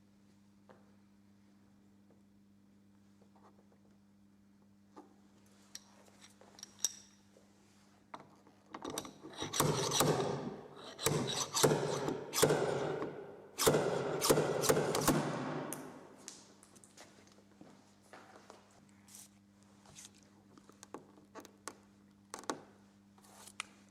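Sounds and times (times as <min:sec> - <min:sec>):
tool rasping and scraping: 0:09.2 - 0:15.3.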